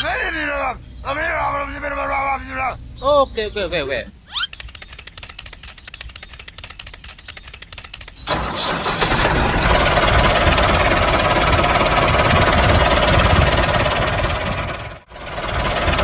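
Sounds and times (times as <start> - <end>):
rapid even ticking: 4.5 - 16.0
small tractor engine running: 4.7 - 16.0.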